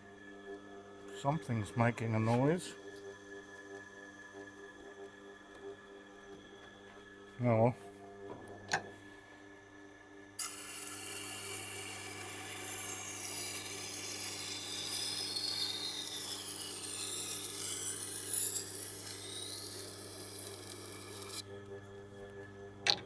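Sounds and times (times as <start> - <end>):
motor humming faintly: 0.0 - 23.0
knife grinding on sharpening wheel: 10.4 - 21.5.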